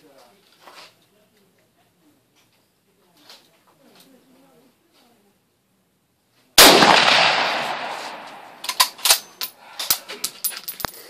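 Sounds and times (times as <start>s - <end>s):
rifle shot with ringing decay: 6.6s - 9.0s.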